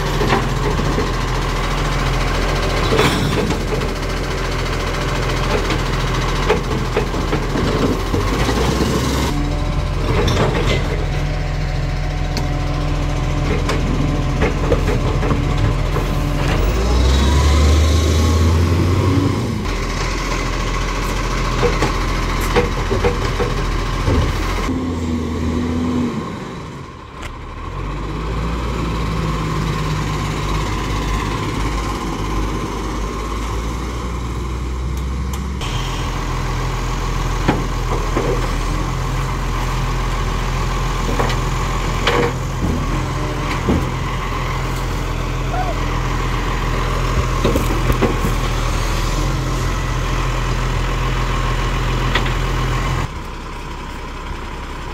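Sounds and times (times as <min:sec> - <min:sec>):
garbage truck engine running: 0:00.0 - 0:54.9
knocks and clatter: 0:02.7 - 0:04.2, 0:10.0 - 0:11.2, 0:13.4 - 0:16.6, 0:21.5 - 0:24.7, 0:47.1 - 0:48.6.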